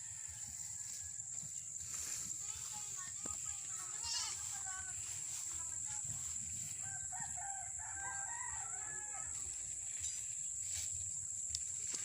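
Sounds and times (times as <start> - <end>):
rooster crowing: 0.0 - 1.3, 6.7 - 9.6.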